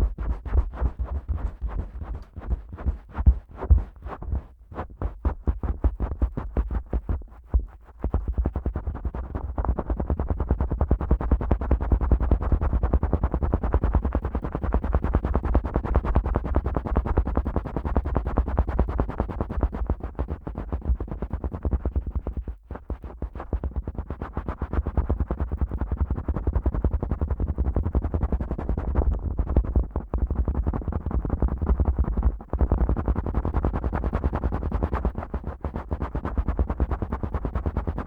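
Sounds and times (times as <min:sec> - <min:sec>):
fingers thumping in microphone ears: 0:00.0 - 0:07.7.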